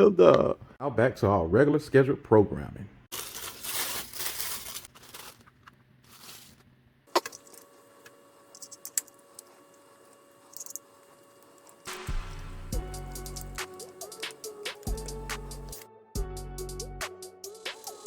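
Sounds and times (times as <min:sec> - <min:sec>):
background music with heavy bass: 0:11.9 - 0:18.0.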